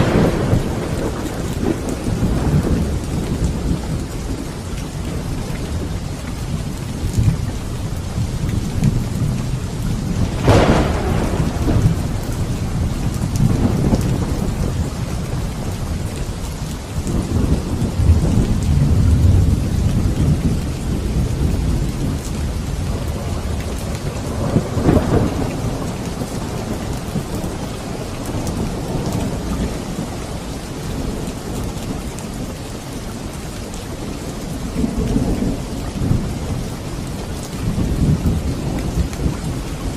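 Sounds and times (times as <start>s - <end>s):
sharp thunderclaps: 0.0s - 4.4s, 10.0s - 16.1s, 17.0s - 30.1s
rolling low thunder: 0.0s - 33.4s
steady rain: 0.0s - 39.9s.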